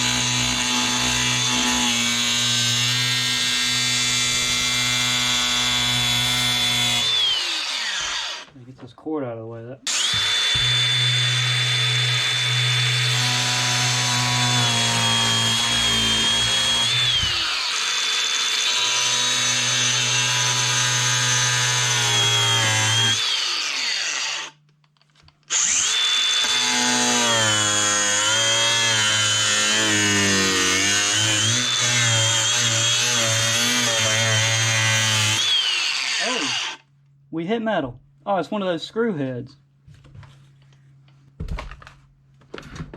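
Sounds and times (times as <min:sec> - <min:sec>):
power tool cutting plastic: 0:00.0 - 0:08.5, 0:09.9 - 0:24.6, 0:25.5 - 0:36.9.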